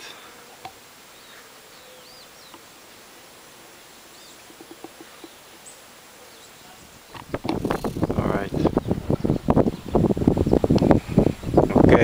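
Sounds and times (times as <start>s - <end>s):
steady outdoor hiss: 0.0s - 12.0s
faint bird chirps: 1.1s - 2.7s, 3.9s - 8.2s.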